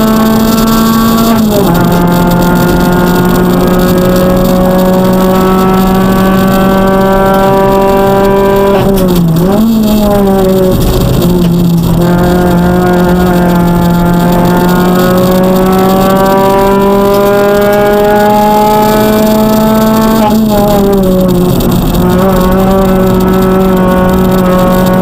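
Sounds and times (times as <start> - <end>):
car engine revving hard: 0.0 - 25.0.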